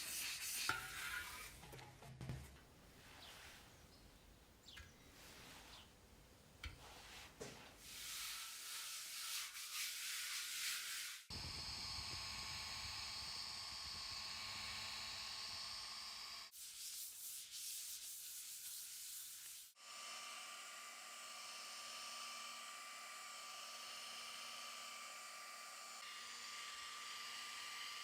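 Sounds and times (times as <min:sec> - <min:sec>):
sanding strokes hissing: 0:00.0 - 0:01.5, 0:06.9 - 0:11.3, 0:16.5 - 0:19.8
small power tool whining: 0:11.3 - 0:16.5, 0:19.8 - 0:28.0.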